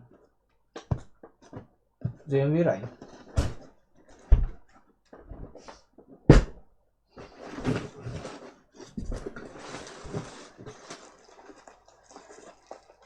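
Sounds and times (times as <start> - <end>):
laptop parts rustling and clattering: 7.2 - 13.0.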